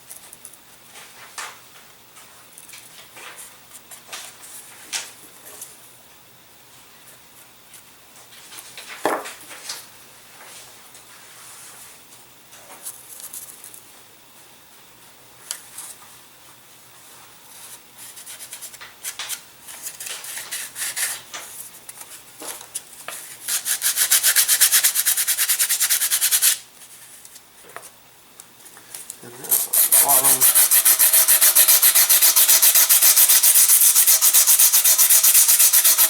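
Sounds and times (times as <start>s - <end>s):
hand sanding strokes: 23.5s - 26.6s, 29.4s - 36.0s.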